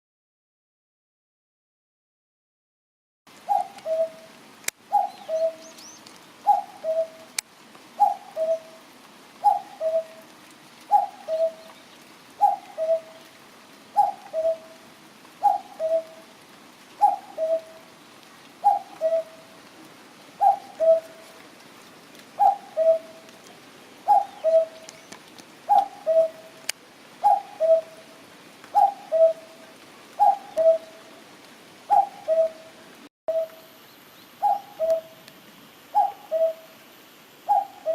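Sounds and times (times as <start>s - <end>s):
cuckoo calling: 3.4s - 4.3s, 4.9s - 7.4s, 8.0s - 8.8s, 9.4s - 10.3s, 10.9s - 13.4s, 14.0s - 14.8s, 15.4s - 16.3s, 17.0s - 18.0s, 18.6s - 19.6s, 20.4s - 21.4s, 22.4s - 23.3s, 24.0s - 26.6s, 27.2s - 29.6s, 30.2s - 31.1s, 31.9s - 35.3s, 35.9s - 36.8s, 37.4s - 37.9s.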